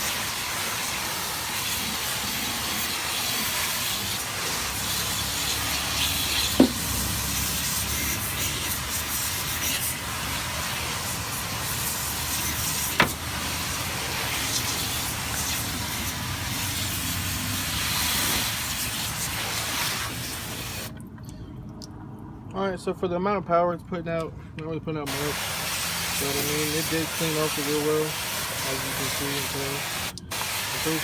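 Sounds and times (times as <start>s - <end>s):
water spray hissing: 0.0s - 20.9s, 25.1s - 31.0s.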